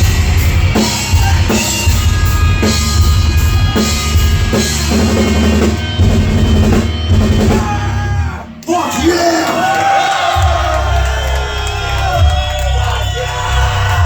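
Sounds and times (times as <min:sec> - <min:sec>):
live rock band playing: 0:00.0 - 0:08.7.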